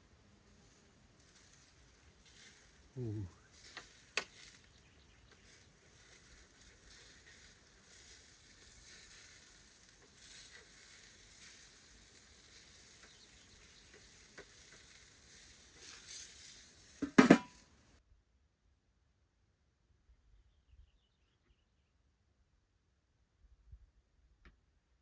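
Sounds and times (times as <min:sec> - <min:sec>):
burger sizzling on a grill: 0:00.3 - 0:17.9
sharp loud knock: 0:17.0 - 0:17.5.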